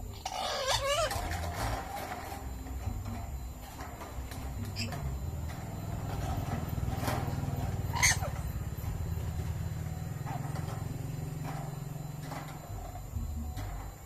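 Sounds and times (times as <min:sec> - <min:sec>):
faint bird chirps: 0:00.0 - 0:14.0
steady low hum: 0:00.0 - 0:14.0
parrot squawk: 0:00.1 - 0:01.5, 0:07.9 - 0:08.4.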